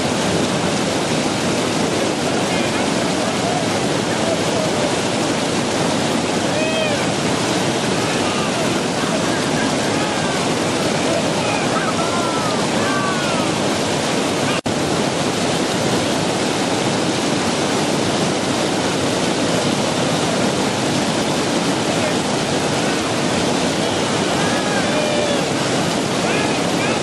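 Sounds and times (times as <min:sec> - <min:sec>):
whitewater rapids rushing: 0:00.0 - 0:27.0
faint voices: 0:01.9 - 0:05.3, 0:06.4 - 0:13.7, 0:21.8 - 0:27.0.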